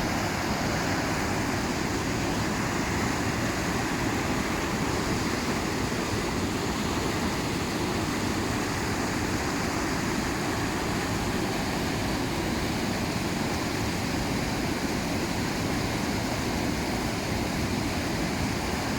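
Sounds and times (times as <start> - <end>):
river rushing over a weir: 0.0 - 18.9.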